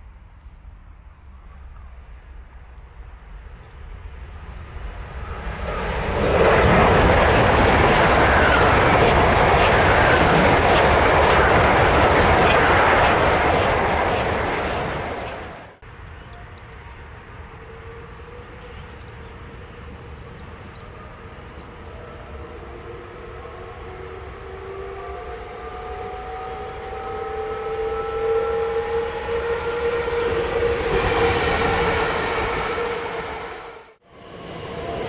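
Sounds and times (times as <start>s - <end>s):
train rumbling: 0.0s - 15.8s, 22.6s - 35.0s
whining tones rising in pitch: 23.6s - 33.9s.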